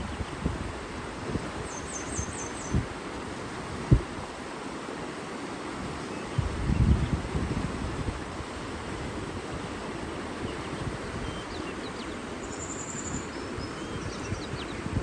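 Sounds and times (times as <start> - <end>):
wind buffeting microphone: 0.0 - 4.3, 5.8 - 11.8, 12.9 - 15.0
water rushing: 0.0 - 15.0
small birds chirping: 1.7 - 2.8, 10.5 - 14.9.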